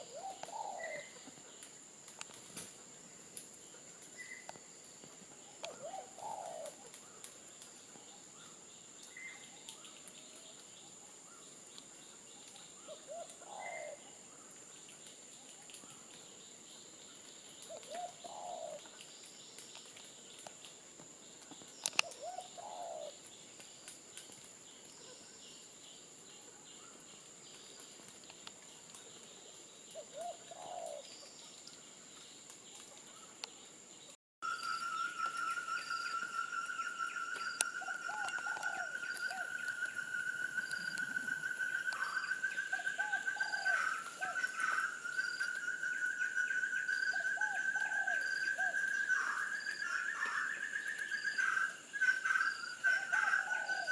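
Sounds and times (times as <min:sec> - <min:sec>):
bird cooing: 0:00.0 - 0:01.4, 0:05.6 - 0:07.0, 0:12.9 - 0:14.1, 0:17.7 - 0:18.9, 0:22.0 - 0:23.2, 0:30.0 - 0:31.1, 0:34.6 - 0:53.9
high-pitched insect whine: 0:33.4 - 0:53.9.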